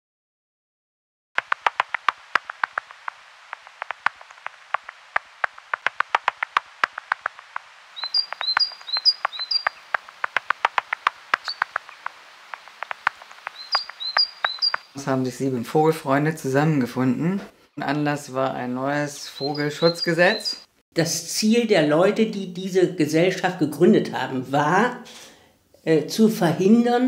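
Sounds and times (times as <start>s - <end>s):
sharp irregular clicks: 1.4s - 15.0s
bird chirping: 6.1s - 15.3s, 18.8s - 20.8s.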